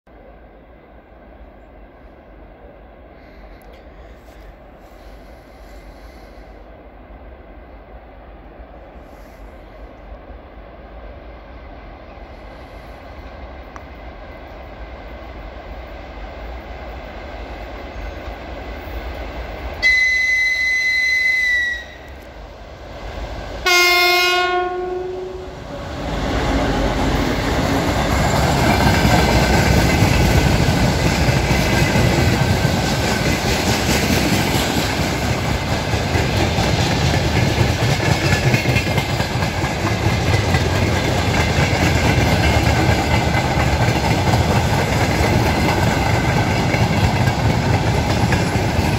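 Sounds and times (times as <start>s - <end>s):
diesel locomotive rumble: 16.0s - 48.9s
high locomotive horn note: 19.8s - 22.2s, 23.6s - 25.7s
low locomotive horn blast: 19.8s - 22.3s, 23.6s - 27.2s
wheels clacking over rail joints: 26.9s - 48.9s.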